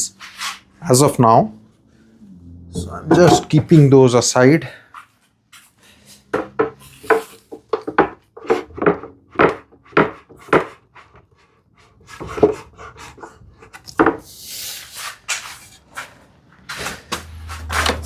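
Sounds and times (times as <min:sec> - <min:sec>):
wooden pieces knocking: 0:02.8 - 0:03.7, 0:06.4 - 0:10.7
wood scraping slide: 0:14.8 - 0:18.0.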